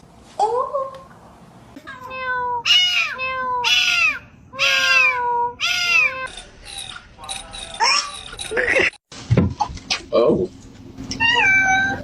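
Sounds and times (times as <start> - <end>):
cat meowing: 1.9 - 6.3, 11.2 - 12.0.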